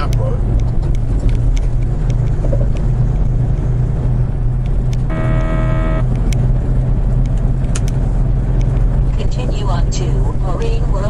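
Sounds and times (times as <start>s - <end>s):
truck driving drone: 0.0s - 11.0s
steady tone with overtones: 5.0s - 6.2s.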